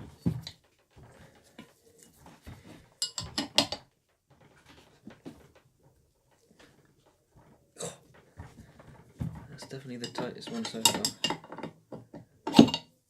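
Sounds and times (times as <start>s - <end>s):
spanner clinking on metal: 10.0s - 11.8s.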